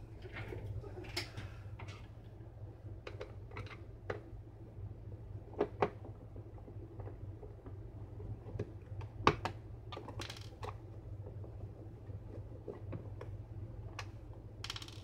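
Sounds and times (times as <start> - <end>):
faint low hum: 0.0 - 9.9
clicks and taps of plastic parts: 8.4 - 11.6.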